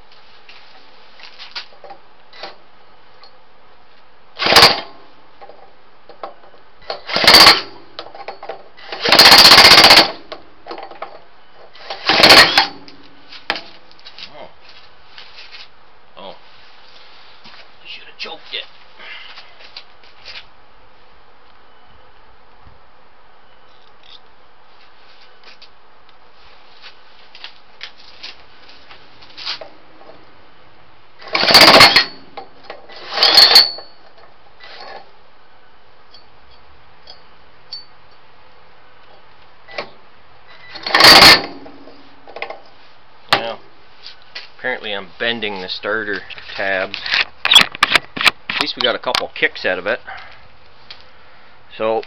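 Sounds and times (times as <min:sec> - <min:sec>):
steady background hiss: 0:00.0 - 0:52.0
starter cranking small engine: 0:04.4 - 0:04.8, 0:07.1 - 0:07.7, 0:08.9 - 0:10.2, 0:11.9 - 0:12.8, 0:31.2 - 0:32.2, 0:40.7 - 0:41.6.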